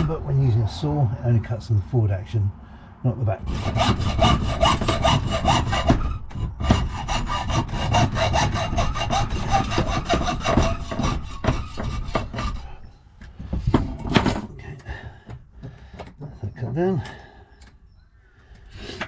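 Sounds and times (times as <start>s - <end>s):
hacksaw cutting metal: 3.4s - 12.9s.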